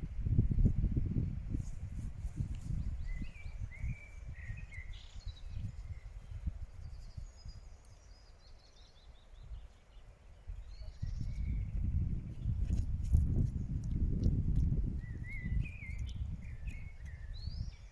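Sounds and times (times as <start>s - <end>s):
birds singing: 2.6s - 12.6s, 14.9s - 17.9s
footsteps on a path: 12.2s - 15.1s.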